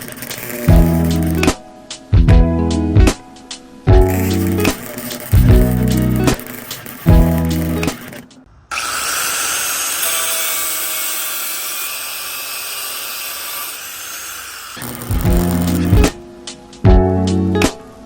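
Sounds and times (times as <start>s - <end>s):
power tool cutting metal: 0.0s - 1.6s, 4.0s - 16.2s.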